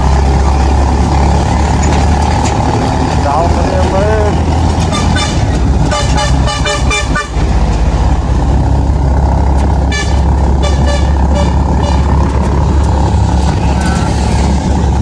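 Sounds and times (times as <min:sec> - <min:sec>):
vehicle engine running: 0:00.0 - 0:15.0
quick horn toots: 0:04.8 - 0:07.6, 0:09.8 - 0:12.5.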